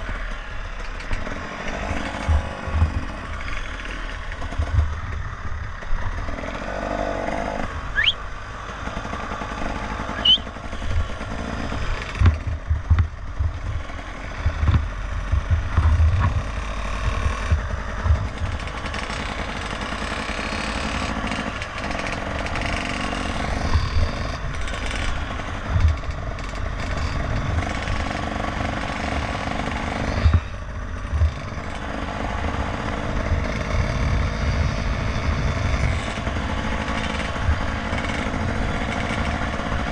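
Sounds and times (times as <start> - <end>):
motorcycle engine rumble: 0.0 - 39.9
low thuds: 14.4 - 18.6.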